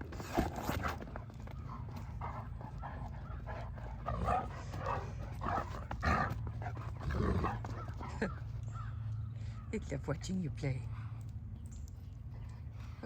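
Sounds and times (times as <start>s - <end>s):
low hum: 0.0s - 13.0s
dogs barking: 1.6s - 9.7s.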